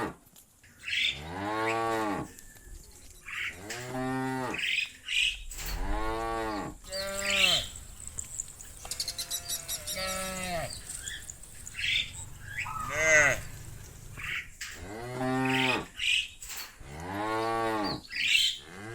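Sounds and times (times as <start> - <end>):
cows mooing: 1.0 - 2.3, 3.4 - 4.6, 5.7 - 16.1, 16.8 - 18.0, 18.6 - 18.9.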